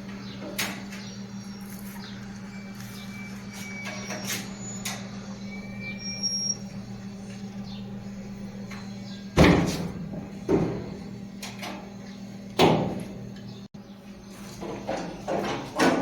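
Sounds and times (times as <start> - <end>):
steady low hum: 0.0 - 16.0
short squeaks: 0.8 - 7.5.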